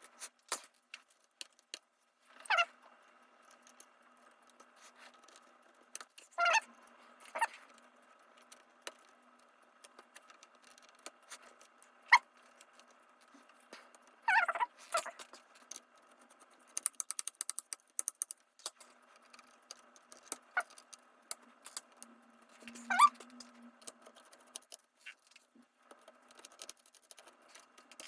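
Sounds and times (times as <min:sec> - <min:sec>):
small tools clicking and scraping: 0:00.1 - 0:28.0
rapid clicks: 0:15.0 - 0:28.0.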